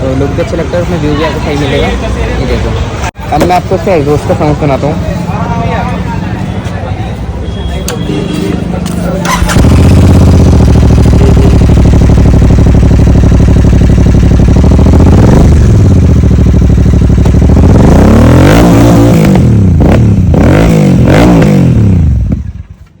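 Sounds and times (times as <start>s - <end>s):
motorcycle engine idling and revving: 0.0s - 23.0s.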